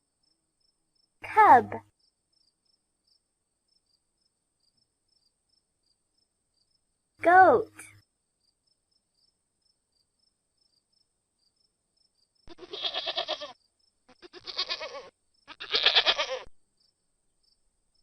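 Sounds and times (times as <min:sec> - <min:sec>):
goat bleating: 0:12.5 - 0:16.5.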